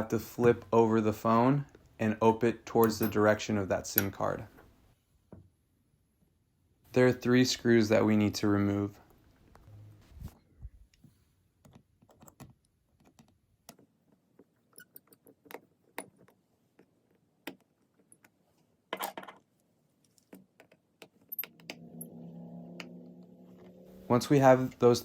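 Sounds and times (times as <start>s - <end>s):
low steady hum: 21.4s - 25.0s.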